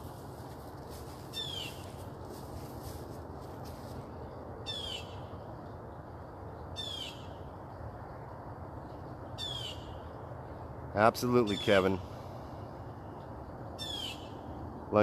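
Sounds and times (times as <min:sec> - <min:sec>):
bird calling: 0:01.3 - 0:02.0, 0:04.7 - 0:05.2, 0:06.8 - 0:07.3, 0:09.4 - 0:10.0, 0:11.4 - 0:11.9, 0:13.8 - 0:14.4.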